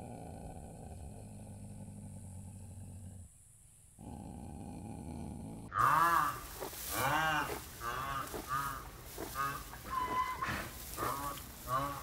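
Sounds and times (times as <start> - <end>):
rhinoceros honking calls: 5.7 - 12.0.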